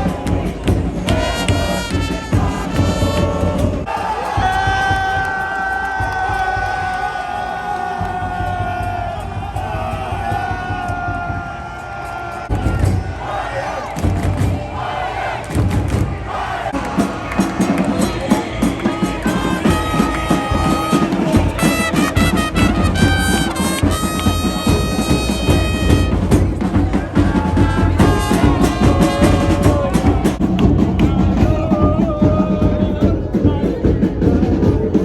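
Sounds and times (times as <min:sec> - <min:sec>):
drums: 0:00.0 - 0:35.0
music with held brass notes: 0:01.0 - 0:04.6, 0:16.4 - 0:30.6
heavy bass: 0:15.5 - 0:35.0.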